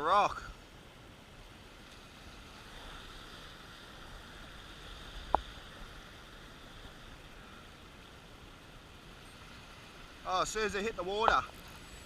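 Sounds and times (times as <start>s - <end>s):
sea washing along rocks: 0.1s - 12.0s.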